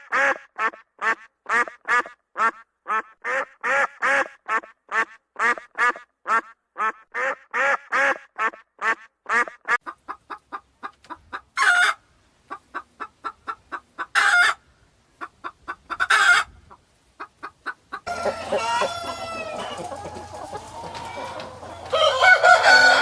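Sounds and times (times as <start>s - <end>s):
chicken squawks: 0.0s - 14.6s, 15.2s - 23.0s
ducks quacking: 0.0s - 23.0s
chickens clucking: 0.1s - 23.0s.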